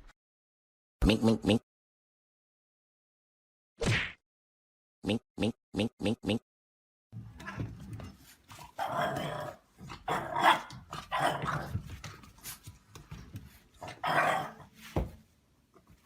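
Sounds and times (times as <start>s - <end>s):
dog growling and barking: 8.6s - 11.8s, 13.8s - 14.7s.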